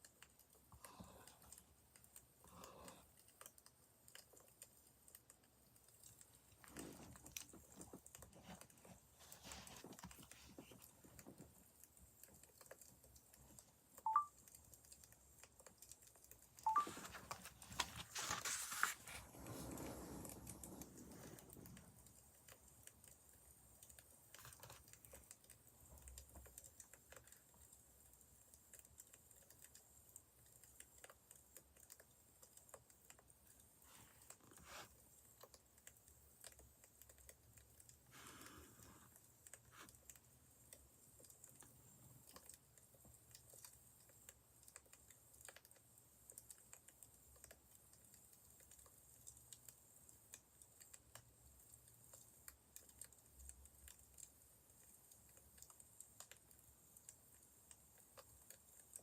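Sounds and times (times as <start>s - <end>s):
rustling: 16.7s - 21.3s.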